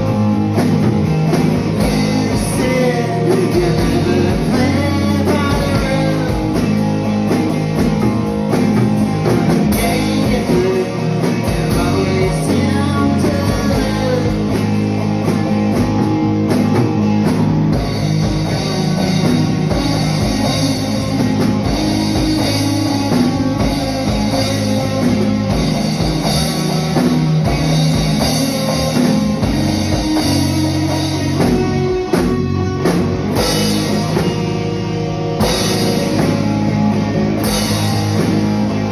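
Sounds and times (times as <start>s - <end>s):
drum kit: 0.0s - 38.9s
electric guitar: 0.0s - 38.9s
person singing: 2.2s - 6.8s, 9.7s - 15.0s.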